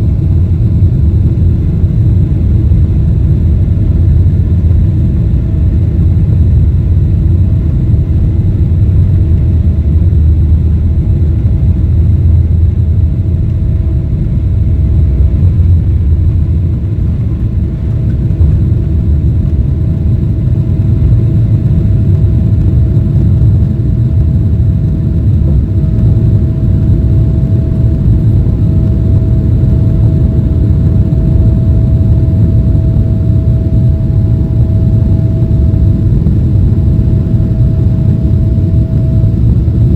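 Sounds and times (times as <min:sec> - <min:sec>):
aircraft engines rumbling: 0:00.0 - 0:39.9
faint steady whine: 0:00.0 - 0:39.9.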